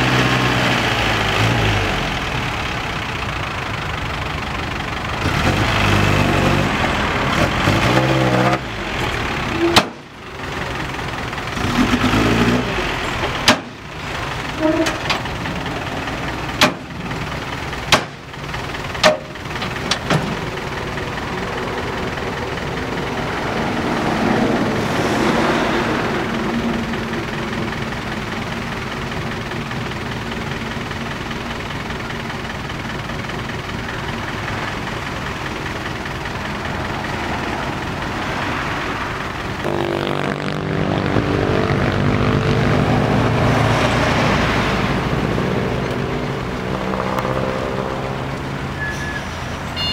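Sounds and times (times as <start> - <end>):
truck engine revving under load: 0.0 - 49.9
sharp knocks: 17.9 - 18.2.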